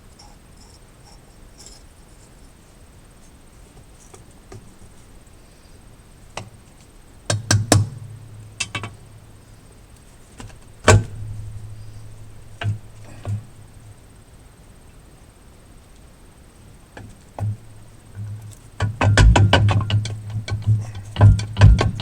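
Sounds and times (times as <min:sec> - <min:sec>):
low ringing hum: 0:00.0 - 0:04.1, 0:04.7 - 0:22.0
metal knocks from hand tools: 0:17.4 - 0:22.0.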